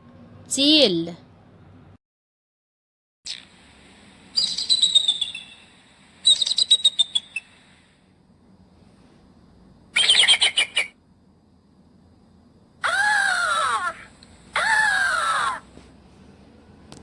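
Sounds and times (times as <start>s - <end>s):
kite bird whistled calls: 4.4s - 5.6s, 6.2s - 7.6s, 10.0s - 11.0s.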